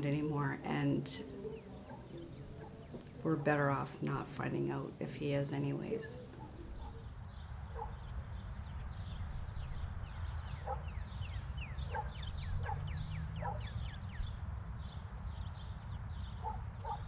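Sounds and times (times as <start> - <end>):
short lower bird calls: 0.9 - 3.3.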